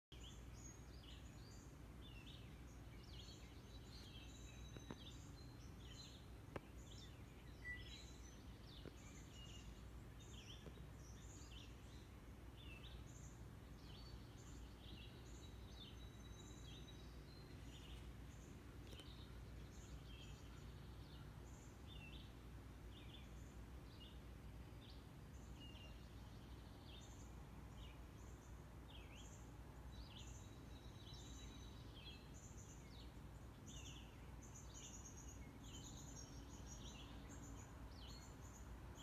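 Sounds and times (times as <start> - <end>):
faint clicks: 18.8 - 19.2.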